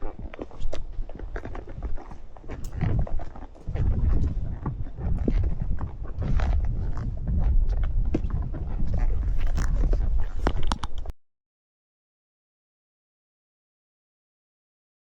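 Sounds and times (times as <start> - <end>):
horse hoof clops: 0.0 - 11.1
rough low wind rumble: 0.0 - 11.1.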